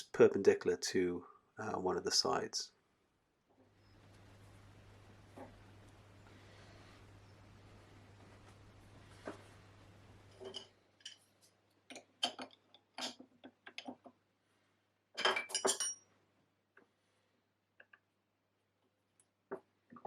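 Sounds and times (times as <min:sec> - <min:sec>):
faint steady hiss and hum: 0:00.0 - 0:20.0
metal parts and tools clinking: 0:10.3 - 0:11.3, 0:15.2 - 0:16.0.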